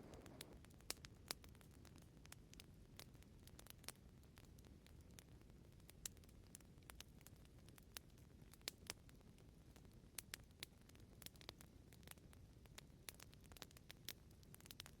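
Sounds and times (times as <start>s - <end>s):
low fire rumble: 0.0s - 0.9s
fire crackling and popping: 0.0s - 15.0s.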